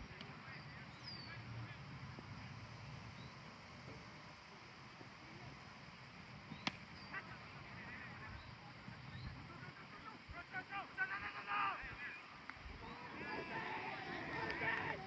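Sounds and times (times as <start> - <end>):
outdoor background noise: 0.0 - 15.0
cricket ball struck: 6.5 - 6.9.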